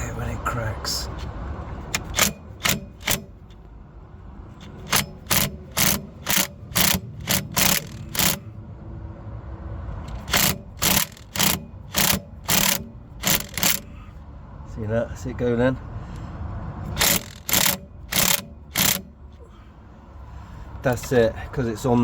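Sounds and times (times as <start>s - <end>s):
impact wrench hammering: 1.9s - 3.6s, 4.6s - 8.4s, 10.0s - 13.9s, 16.9s - 19.2s.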